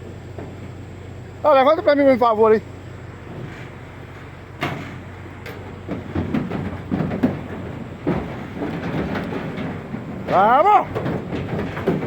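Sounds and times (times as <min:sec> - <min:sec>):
cattle knocking and clattering: 0:03.2 - 0:12.0.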